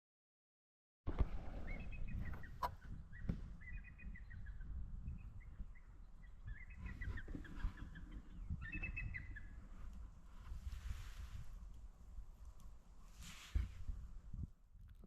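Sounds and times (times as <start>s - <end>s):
eagles chirping: 1.4s - 9.7s.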